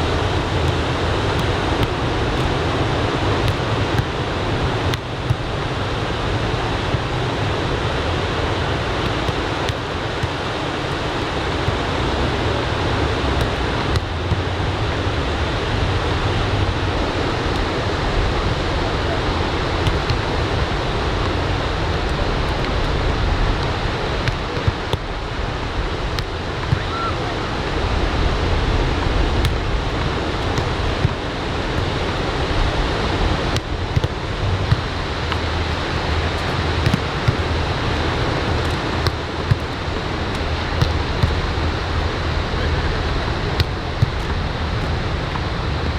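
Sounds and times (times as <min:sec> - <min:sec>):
wind rumbling on microphone: 0:00.0 - 0:45.9.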